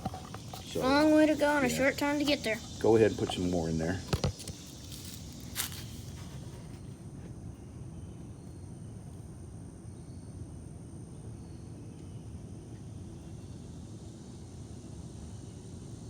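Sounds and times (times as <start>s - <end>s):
thin high steady tone: 0.0s - 4.0s.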